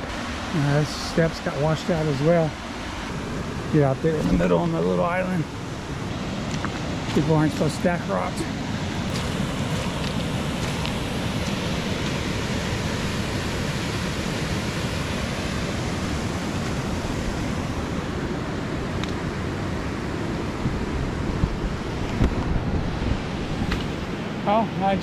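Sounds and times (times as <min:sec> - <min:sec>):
waterfall and river rushing: 0:00.0 - 0:25.0.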